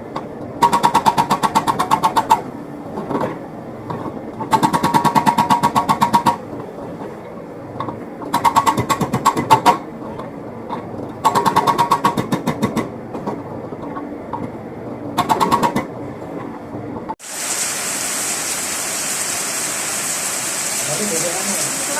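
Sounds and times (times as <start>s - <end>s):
excavator engine running: 0.0s - 21.9s
hydraulic breaker hammering: 0.6s - 2.5s, 4.4s - 6.4s, 8.3s - 9.8s, 11.2s - 12.9s, 15.2s - 15.9s.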